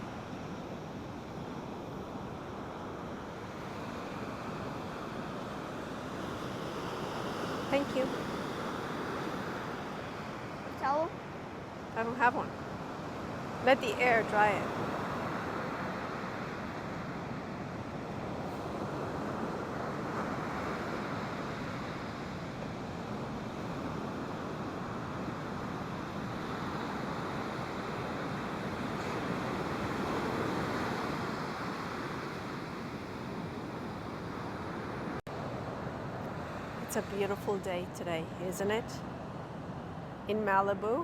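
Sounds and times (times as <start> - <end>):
ocean surf washing on beach: 0.0 - 40.2.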